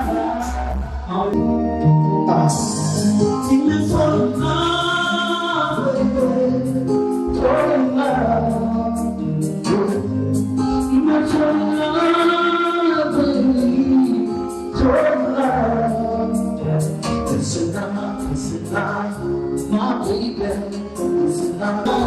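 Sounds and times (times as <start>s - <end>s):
bass line: 0.0s - 22.0s
voices singing: 7.3s - 10.2s.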